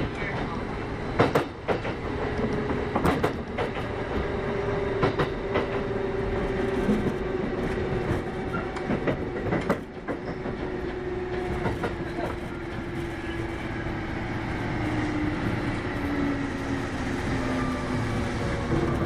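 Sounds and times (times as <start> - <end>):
electric train hum: 0.0 - 19.0
wheels clicking over rail joints: 1.2 - 4.3, 6.8 - 13.0.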